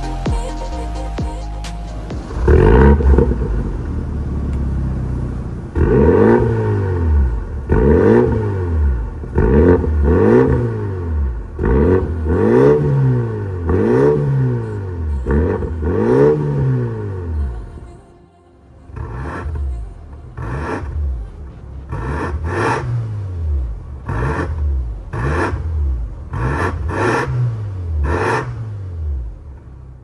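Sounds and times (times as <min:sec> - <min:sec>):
car engine revving: 0:00.0 - 0:17.8, 0:18.9 - 0:30.0
car engine idling: 0:00.0 - 0:18.0, 0:18.6 - 0:30.0.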